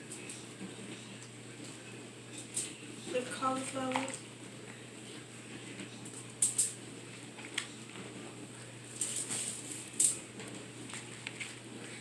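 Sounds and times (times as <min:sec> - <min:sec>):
aluminium foil crinkling: 0:08.9 - 0:11.6.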